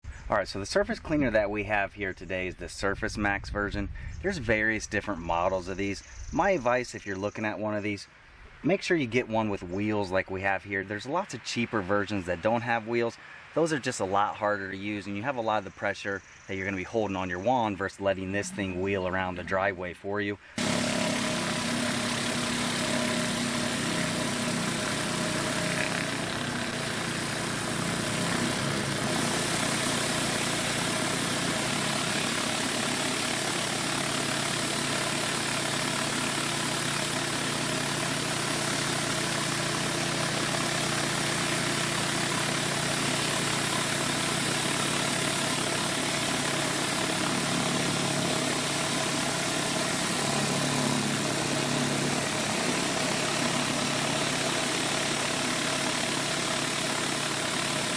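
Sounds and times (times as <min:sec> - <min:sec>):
high-pressure water spraying on concrete: 0:20.6 - 0:57.9
pressure washer engine running: 0:20.6 - 0:57.9.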